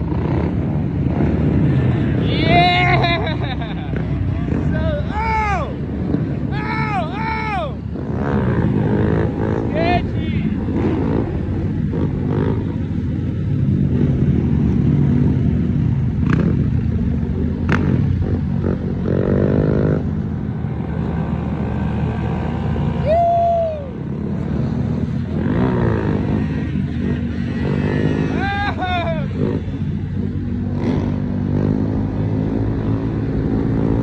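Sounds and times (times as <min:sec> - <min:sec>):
small motorcycle engines revving: 0:00.0 - 0:34.0
person whooping: 0:22.9 - 0:24.1, 0:28.4 - 0:29.3.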